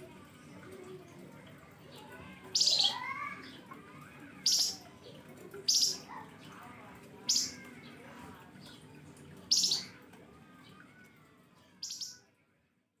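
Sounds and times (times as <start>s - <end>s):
songbird high-pitched calls: 2.5s - 3.2s, 4.4s - 4.8s, 5.7s - 6.1s, 7.2s - 7.6s, 9.5s - 10.0s, 11.8s - 12.2s
faint bird twittering: 4.4s - 4.8s, 5.7s - 6.2s, 7.2s - 7.8s, 9.5s - 10.0s, 11.8s - 12.2s.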